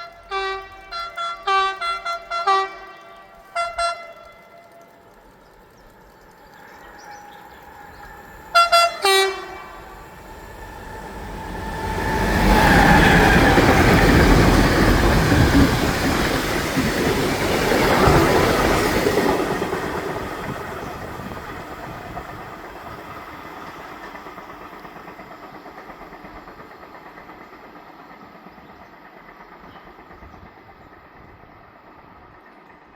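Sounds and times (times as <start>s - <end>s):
train horn blasts: 0.0s - 4.9s, 8.5s - 10.1s
freight train rumbling past: 0.0s - 32.9s.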